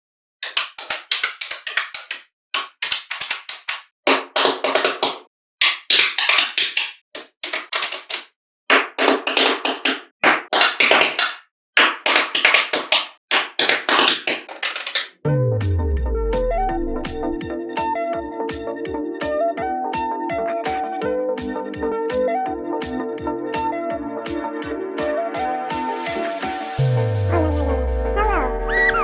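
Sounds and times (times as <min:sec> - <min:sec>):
magnetic balls clicking together: 0:00.4 - 0:03.9, 0:04.6 - 0:08.3.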